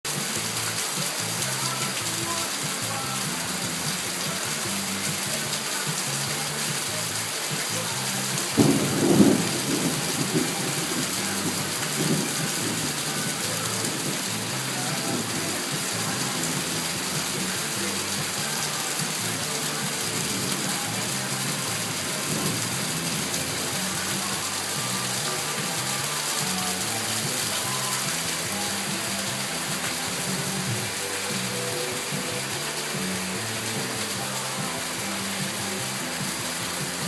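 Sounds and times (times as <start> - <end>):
heavy rain falling: 0.0 - 37.0.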